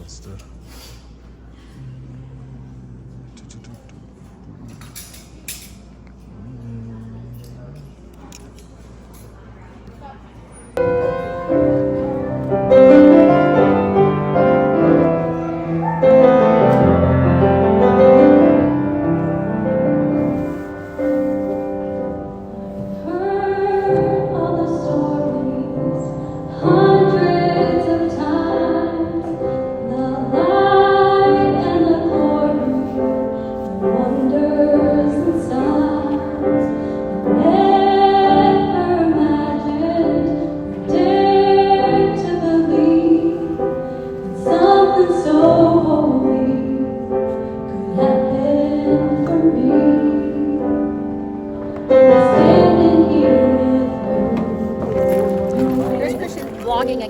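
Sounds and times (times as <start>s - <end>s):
woman singing: 23.0s - 51.2s, 51.9s - 57.0s.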